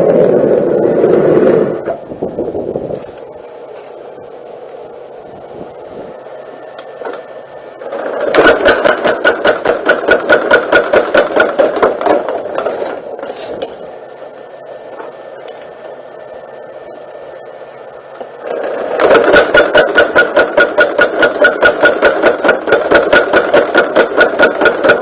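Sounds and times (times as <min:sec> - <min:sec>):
motor hum: 0:00.0 - 0:25.0
forging hammer blows: 0:06.7 - 0:13.9, 0:18.2 - 0:25.0.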